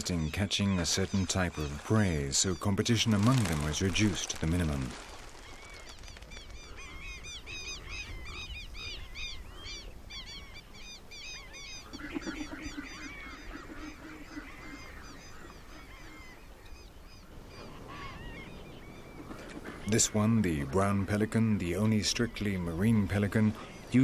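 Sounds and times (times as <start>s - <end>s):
deeper bird calls: 0.0s - 16.5s
birds high calls: 0.0s - 24.0s.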